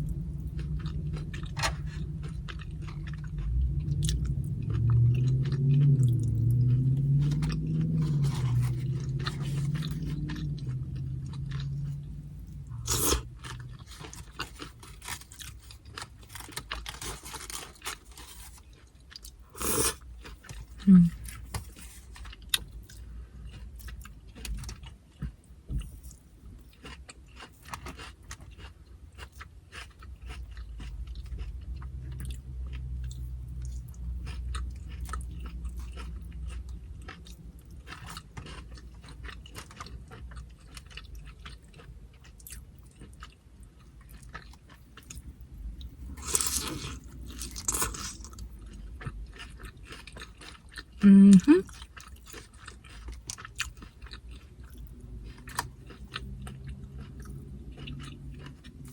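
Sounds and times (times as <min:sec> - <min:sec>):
steady low hum: 0:00.0 - 0:26.8
chewing and crunching chips: 0:00.0 - 0:58.9.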